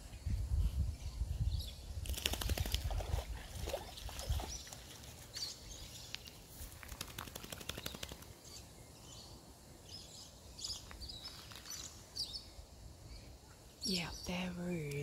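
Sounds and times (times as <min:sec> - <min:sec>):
fast runs of clicks: 0:06.8 - 0:08.3
birds chirping: 0:07.1 - 0:15.0.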